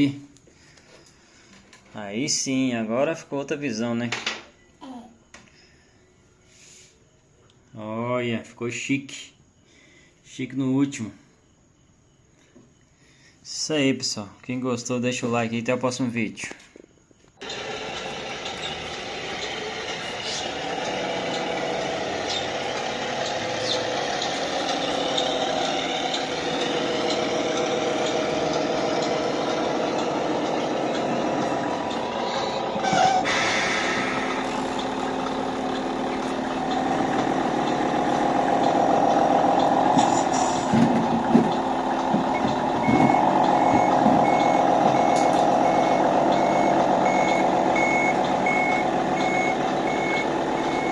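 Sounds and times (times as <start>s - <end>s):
diesel truck engine sound: 17.4s - 50.9s
reversing beeper: 17.4s - 50.9s
air brake hiss: 33.1s - 34.4s.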